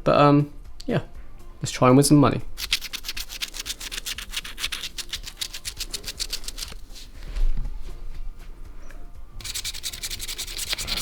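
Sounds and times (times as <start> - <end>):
scratch cards being scratched: 2.6 - 7.1, 9.4 - 11.0.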